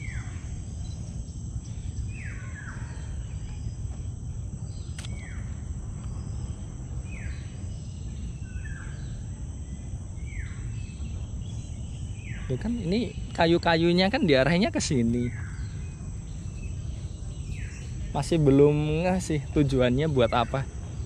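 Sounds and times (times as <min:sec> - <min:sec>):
bird calling: 0:00.0 - 0:04.0, 0:04.6 - 0:21.0
insects droning: 0:00.0 - 0:21.0
single click: 0:04.9 - 0:05.2.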